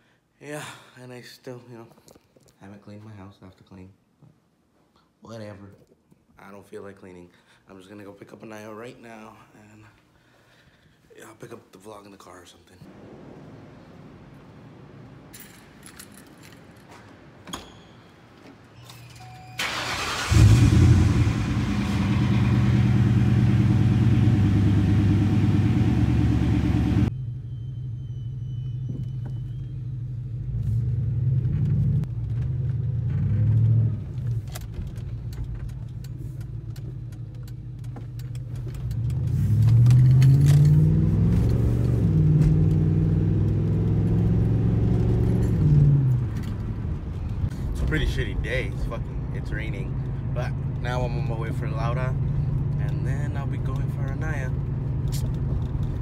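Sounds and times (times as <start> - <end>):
engine cranking: 19.6 - 22.0
car engine running: 20.4 - 27.1.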